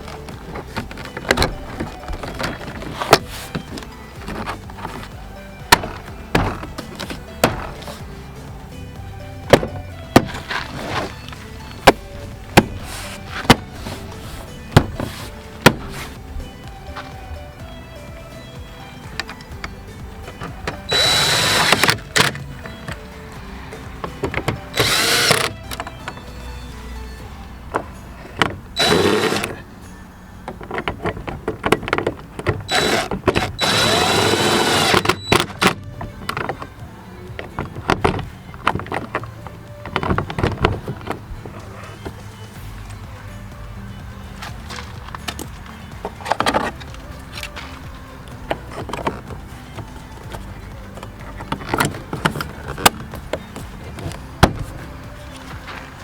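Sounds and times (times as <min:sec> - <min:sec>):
background music: 0:00.0 - 0:56.0
sharp clicks or knocks: 0:30.5 - 0:36.8
small electric motor running: 0:33.6 - 0:35.0.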